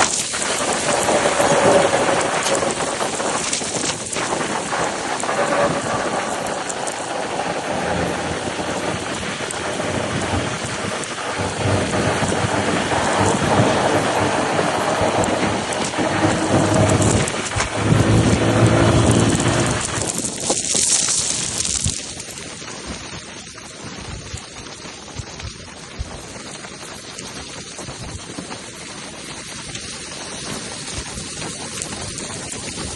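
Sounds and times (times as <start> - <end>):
truck roaring with deep rumble: 4.7 - 20.6.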